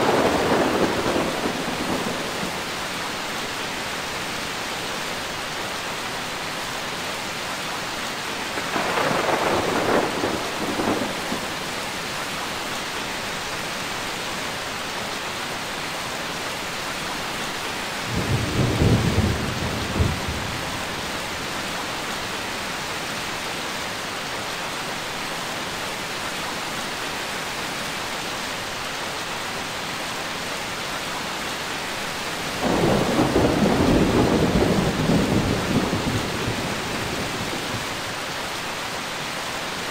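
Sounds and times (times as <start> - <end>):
thunder rumbling: 0.0 - 2.7, 8.6 - 11.7, 18.1 - 21.2, 32.6 - 38.0
heavy rain: 0.0 - 39.9.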